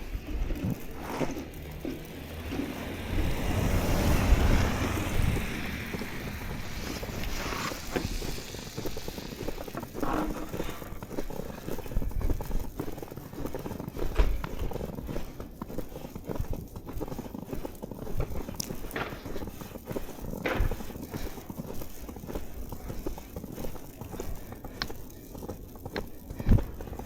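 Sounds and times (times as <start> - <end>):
broad rushing sound: 0.0 - 10.3
footsteps crunching through snow: 0.0 - 27.0.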